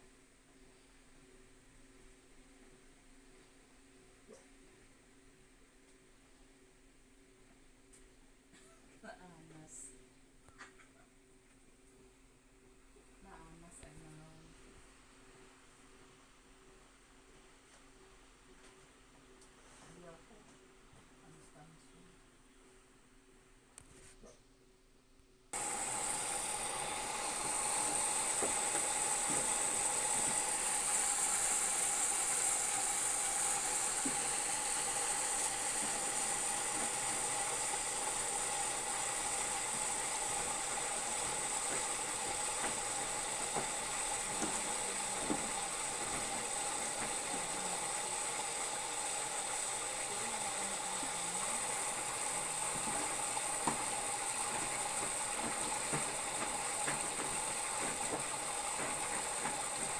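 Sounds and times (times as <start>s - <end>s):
washing machine running: 25.5s - 59.9s.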